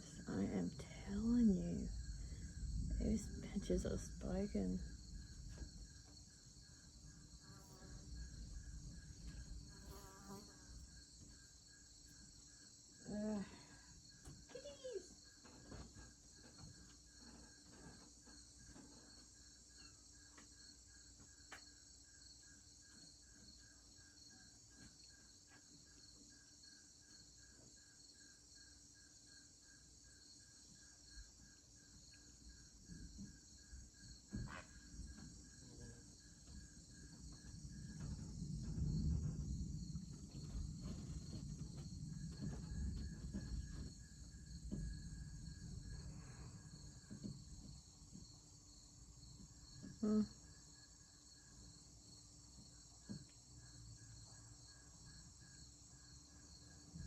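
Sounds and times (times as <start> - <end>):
distant thunder rumbling: 0.0 - 5.9, 37.3 - 47.0
insects chirping: 0.0 - 57.0.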